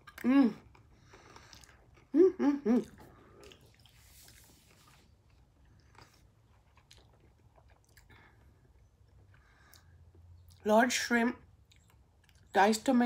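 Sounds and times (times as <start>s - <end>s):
person chewing crunchy food: 0.0s - 10.6s
person humming mm: 2.1s - 3.0s.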